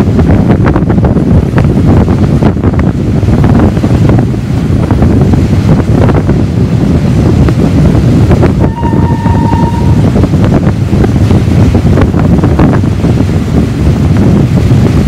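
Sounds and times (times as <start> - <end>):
train carriages rumbling on rails: 0.0 - 15.0
wind buffeting the microphone: 0.0 - 15.0
train whistle blast: 8.6 - 10.1.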